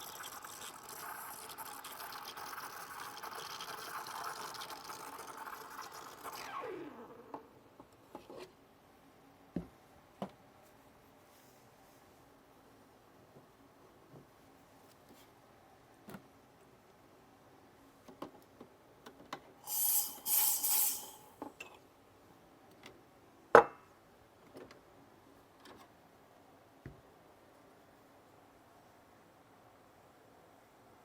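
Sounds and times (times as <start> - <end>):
espresso machine hissing: 19.6 - 21.4.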